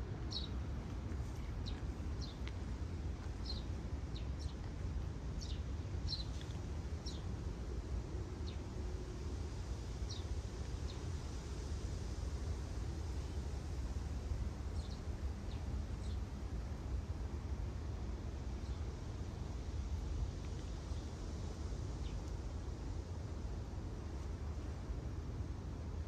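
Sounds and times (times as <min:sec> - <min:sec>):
small birds chirping: 0:00.3 - 0:00.6, 0:01.3 - 0:02.5, 0:03.4 - 0:04.8, 0:05.4 - 0:07.3.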